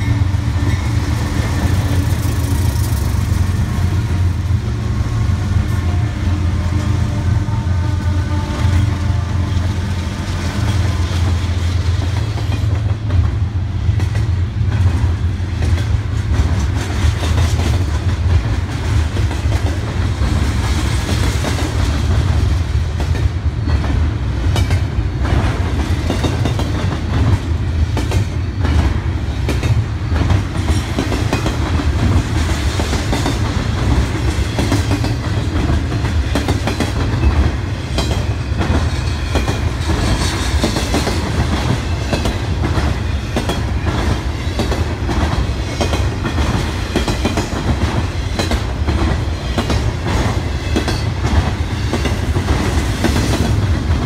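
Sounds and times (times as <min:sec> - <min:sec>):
wheels clicking on rails: 0:00.0 - 0:04.6
freight train rumbling past: 0:00.0 - 0:54.0.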